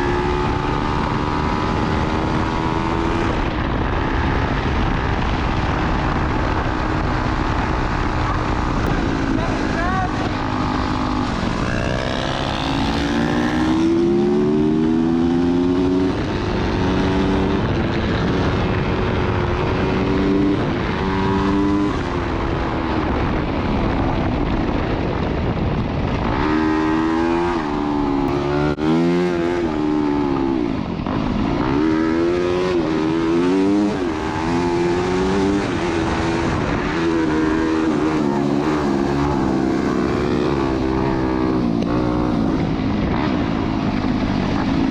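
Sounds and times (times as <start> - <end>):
dirt bike engine revving: 8.6 - 22.1, 26.2 - 30.7, 31.4 - 43.4.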